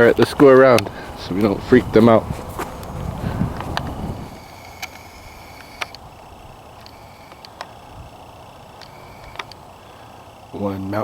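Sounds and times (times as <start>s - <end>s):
faint sharp clicks: 4.6s - 6.1s, 6.8s - 7.9s, 8.7s - 9.7s.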